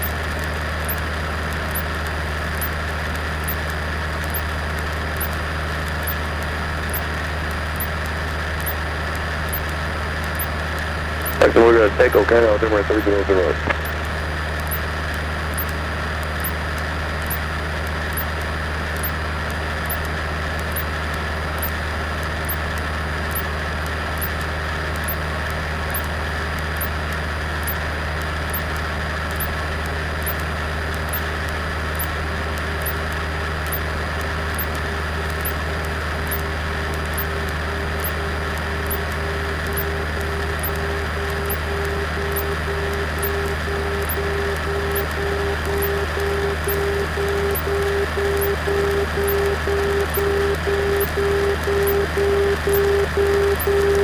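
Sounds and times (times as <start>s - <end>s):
faint high ticks: 0.0s - 11.4s, 15.5s - 15.8s, 16.4s - 25.3s, 25.9s - 54.0s
faint dashed beeping tone: 11.3s - 14.0s, 37.2s - 54.0s.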